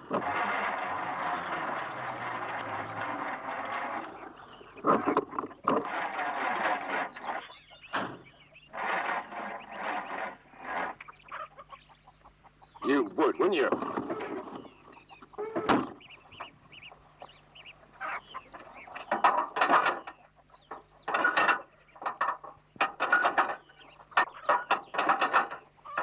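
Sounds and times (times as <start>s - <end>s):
old car engine running: 0.0s - 11.2s.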